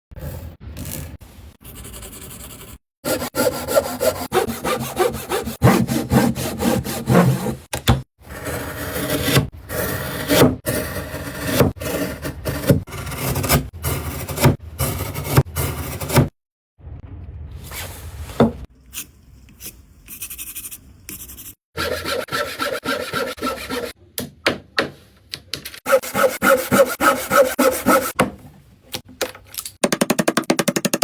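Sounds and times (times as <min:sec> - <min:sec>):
saw cutting through wood: 0:03.0 - 0:07.7, 0:21.8 - 0:24.0, 0:25.9 - 0:28.2.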